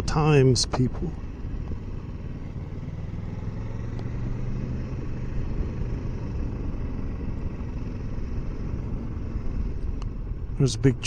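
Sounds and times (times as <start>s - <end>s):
motorcycle engine running: 0.0s - 10.7s
wind and road noise: 0.0s - 11.0s.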